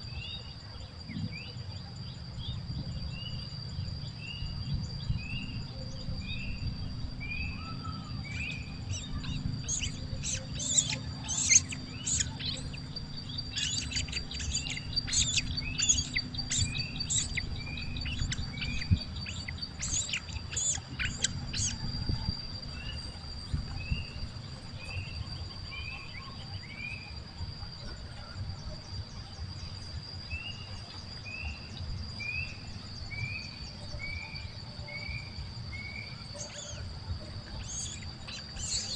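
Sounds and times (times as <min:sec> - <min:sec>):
birds chirping: 0:00.0 - 0:38.9
steady high-pitched whine: 0:00.0 - 0:38.9
low rumble: 0:02.4 - 0:25.5.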